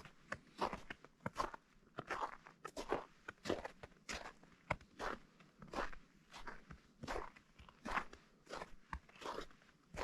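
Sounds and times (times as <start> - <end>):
footsteps crunching in snow: 5.0 - 10.0.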